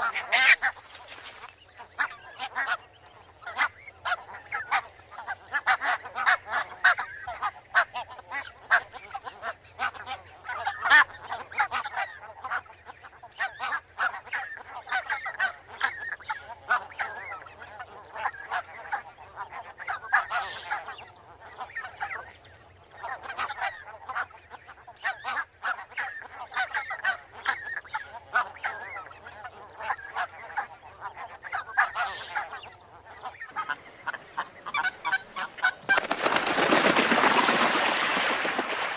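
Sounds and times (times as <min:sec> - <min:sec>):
geese honking: 0:00.0 - 0:12.6, 0:22.9 - 0:38.9.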